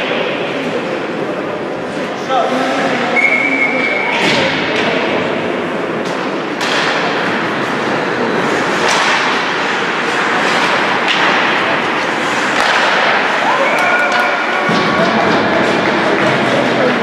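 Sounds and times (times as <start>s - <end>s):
hockey sticks and puck clacking: 3.8s - 5.2s, 5.9s - 17.0s
skates scraping on ice: 7.6s - 17.0s.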